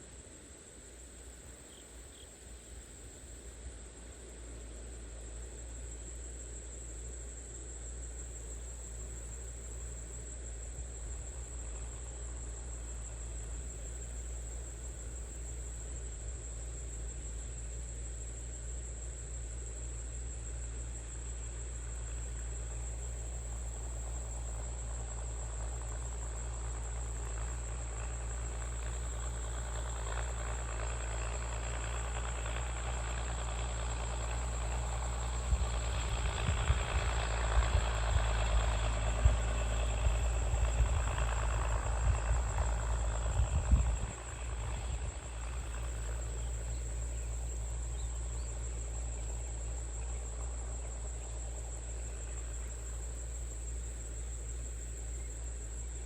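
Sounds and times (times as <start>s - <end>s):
crickets trilling: 0.0s - 56.0s
tractor engine hum: 0.0s - 56.0s
rumble with low thumps: 6.0s - 56.0s.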